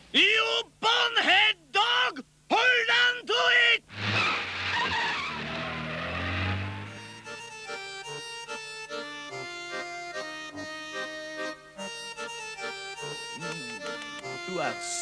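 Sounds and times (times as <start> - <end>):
accordion melody: 5.8 - 15.0.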